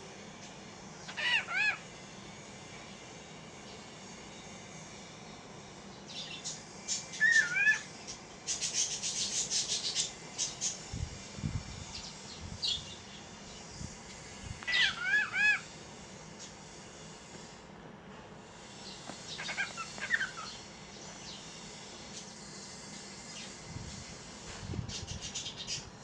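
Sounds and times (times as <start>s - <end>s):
birds chirping: 6.0s - 10.9s, 11.8s - 13.8s, 14.6s - 15.7s, 18.8s - 22.4s
whistled bird calls: 6.9s - 7.9s.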